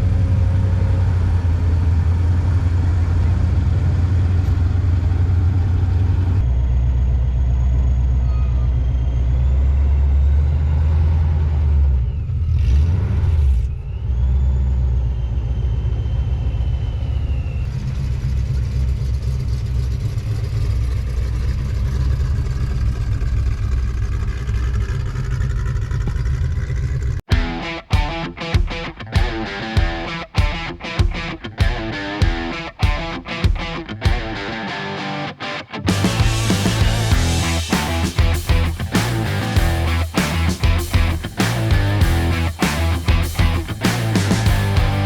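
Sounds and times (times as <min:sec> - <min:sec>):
car engines rumbling: 0:00.0 - 0:27.2
loud rush: 0:27.3 - 0:45.0.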